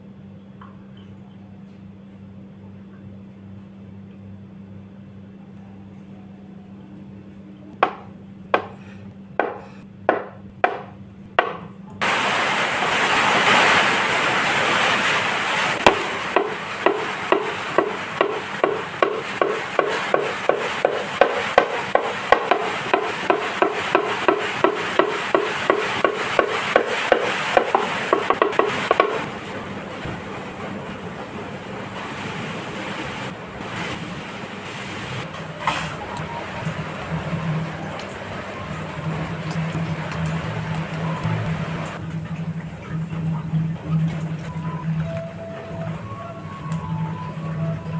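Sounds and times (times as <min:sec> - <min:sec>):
sharp knocks: 0:08.6 - 0:08.8, 0:09.4 - 0:11.7, 0:15.8 - 0:29.4
knife chopping on cutting board: 0:09.4 - 0:11.6, 0:15.8 - 0:29.2
steady hiss: 0:12.0 - 0:35.3.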